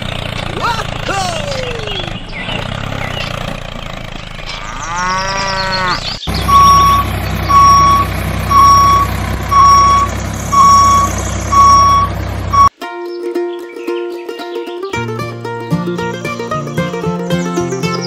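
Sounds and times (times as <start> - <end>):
vehicle engine hum: 0.0 - 12.8
cow mooing: 4.5 - 6.1
reversing alarm beeping: 6.3 - 12.7.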